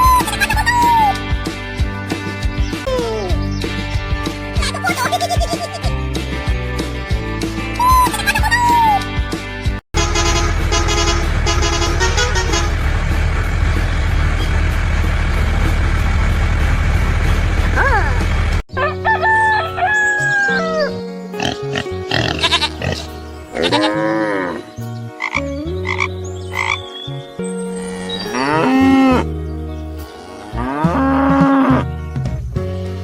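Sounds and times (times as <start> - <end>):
steady low notes: 10.0 - 18.6
animal calls: 18.8 - 27.0.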